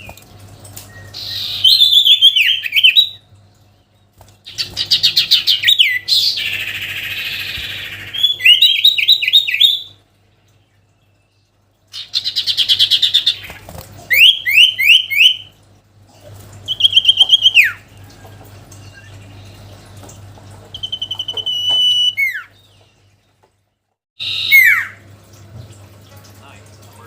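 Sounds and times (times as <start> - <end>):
bird singing whistled phrases: 0.9 - 3.2, 5.5 - 10.0, 14.1 - 15.5, 16.7 - 17.8, 20.7 - 22.6, 24.2 - 25.0.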